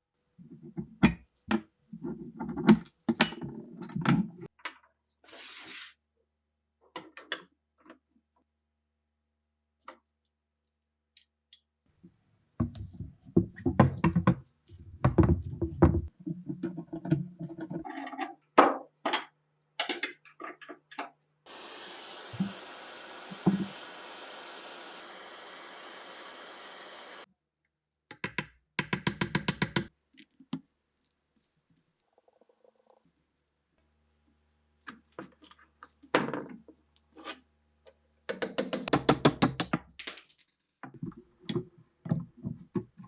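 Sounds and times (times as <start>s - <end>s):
steady hiss: 21.5s - 27.3s.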